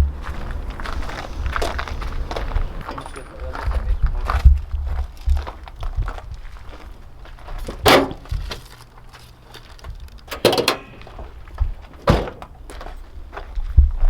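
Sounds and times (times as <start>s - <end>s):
knocks and thuds: 7.6s - 8.6s, 10.3s - 12.7s.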